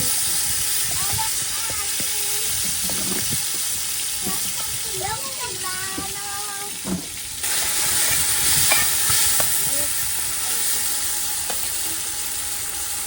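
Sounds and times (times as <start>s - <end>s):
paste sizzling in hot oil: 0.0s - 13.0s
spoon knocking on pot: 8.6s - 9.6s.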